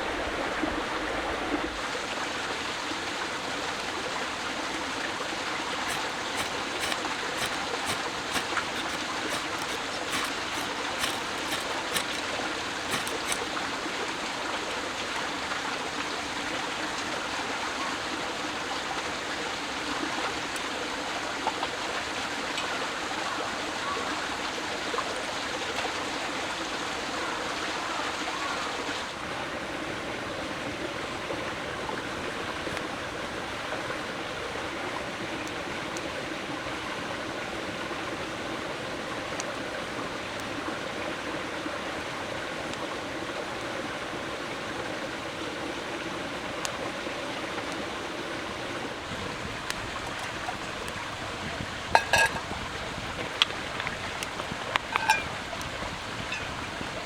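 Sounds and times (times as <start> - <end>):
running water rushing: 5.2 - 14.3, 48.4 - 57.0
sharp clicks: 5.9 - 12.3, 12.9 - 13.5.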